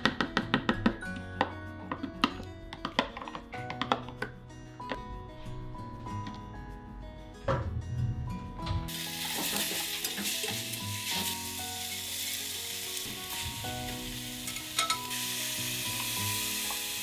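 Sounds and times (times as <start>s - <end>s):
food sizzling in a pot: 8.9s - 17.0s.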